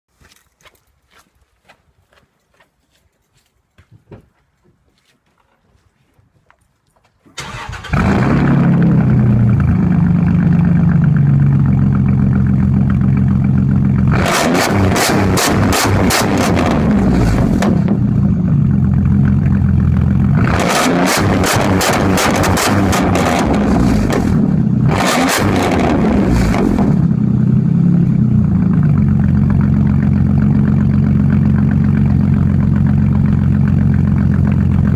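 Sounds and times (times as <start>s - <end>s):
truck engine starting and running: 7.2s - 34.9s
choppy exhaust pulsing: 7.9s - 34.9s.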